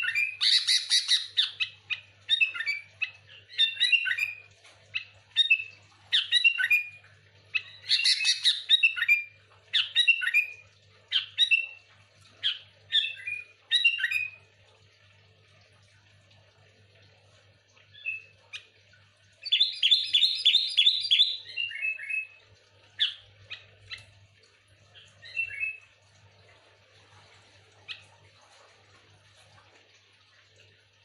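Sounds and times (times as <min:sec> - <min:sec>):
bird singing whistled notes: 0:19.4 - 0:22.4
faint low hum: 0:21.5 - 0:31.0.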